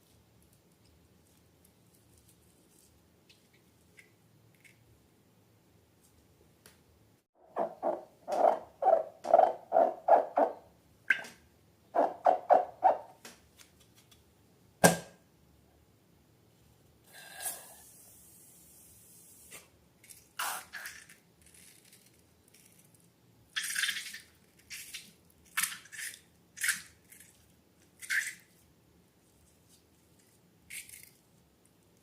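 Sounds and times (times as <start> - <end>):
faint hiss: 16.6 - 20.8.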